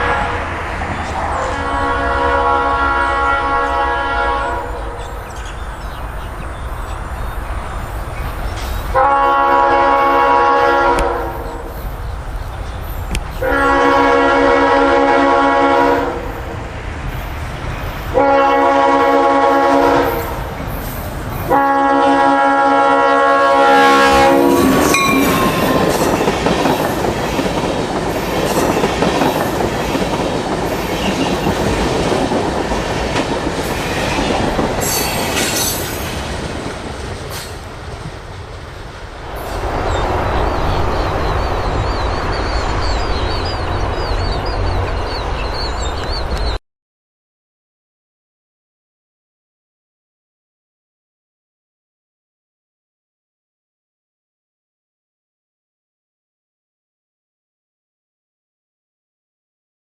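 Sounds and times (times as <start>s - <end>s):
locomotive air horn blasts: 0.0s - 0.6s, 1.4s - 5.0s, 8.9s - 11.6s, 13.4s - 16.3s, 18.1s - 20.4s, 21.5s - 26.3s
train wheels clattering on rails: 24.7s - 38.2s.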